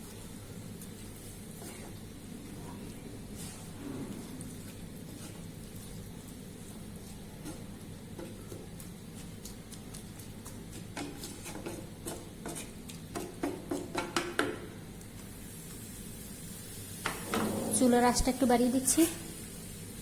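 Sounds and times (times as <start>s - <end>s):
utensil stirring spinach in pan: 0.0s - 17.4s
utensil clicks and knocks on pan: 11.0s - 14.7s.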